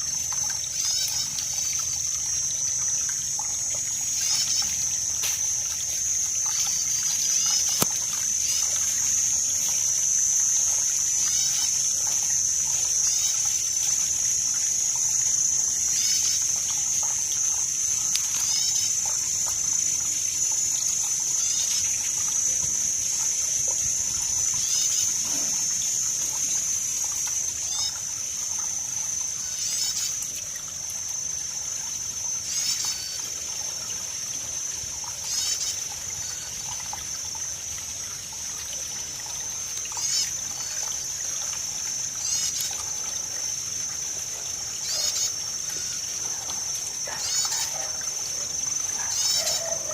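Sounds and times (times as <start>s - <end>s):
high-pitched drone: 0.0s - 30.3s
water trickling and splashing: 0.0s - 49.9s.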